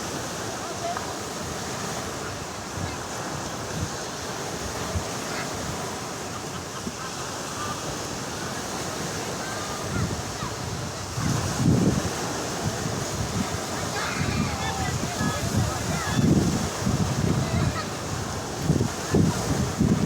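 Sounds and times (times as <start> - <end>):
sea surf breaking: 0.0 - 20.0
wind buffeting microphone: 7.8 - 20.0.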